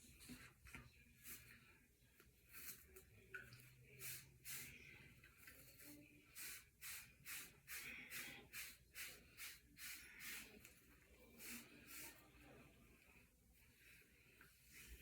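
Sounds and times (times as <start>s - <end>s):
brush strokes through hair: 0.0s - 3.2s, 3.8s - 15.0s.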